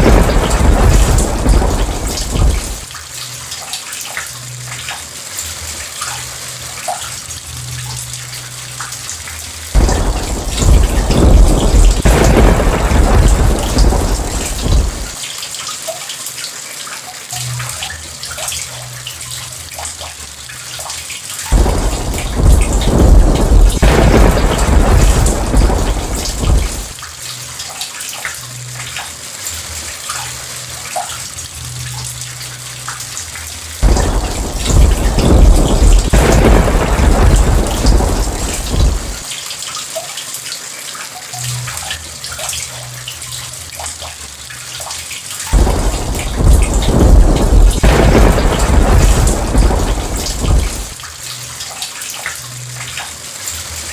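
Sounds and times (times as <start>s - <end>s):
thunder rumbling: 0.0s - 2.9s, 9.8s - 15.2s, 21.5s - 27.0s, 33.8s - 39.3s, 45.5s - 51.0s
heavy rain: 0.0s - 53.9s
water dripping: 0.0s - 53.9s.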